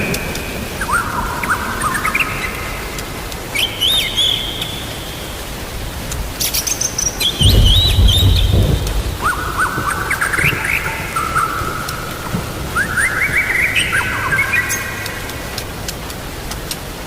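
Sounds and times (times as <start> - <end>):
rain falling: 0.0 - 17.0
songbirds singing: 0.0 - 17.0
low rumble of thunder: 7.2 - 14.3.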